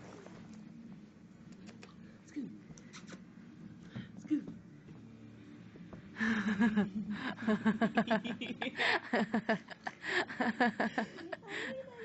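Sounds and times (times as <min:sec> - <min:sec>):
people laughing: 0:06.2 - 0:12.0.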